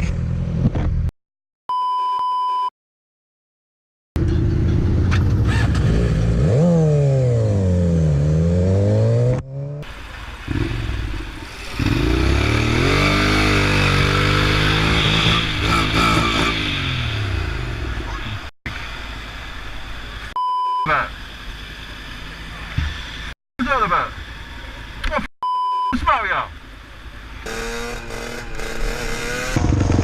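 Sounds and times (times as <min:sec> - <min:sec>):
motorcycle engine revving: 0:04.2 - 0:18.5, 0:27.4 - 0:30.0.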